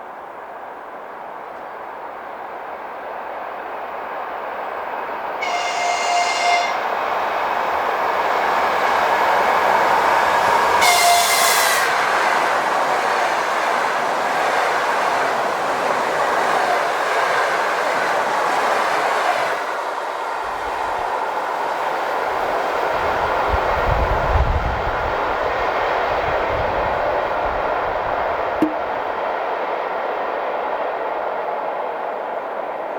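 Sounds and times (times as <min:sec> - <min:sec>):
train wheels rushing on rails: 0:00.0 - 0:32.9
train horn blasts: 0:05.4 - 0:06.9, 0:10.8 - 0:12.1.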